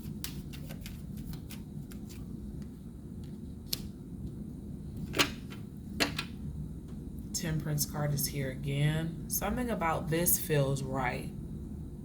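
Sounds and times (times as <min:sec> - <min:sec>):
cards clicking and tapping: 0:00.0 - 0:02.7
low room hum: 0:00.0 - 0:12.0.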